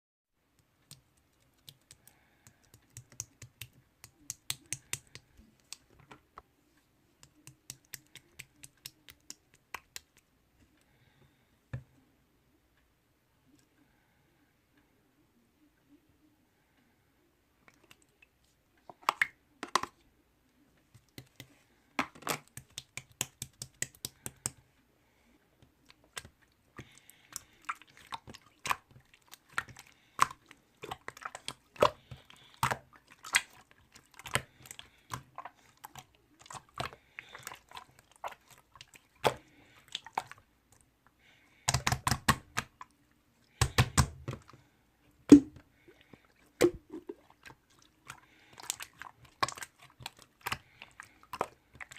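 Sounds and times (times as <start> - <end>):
chewing sweets with mouth clicks: 25.8 - 40.9, 45.8 - 51.9.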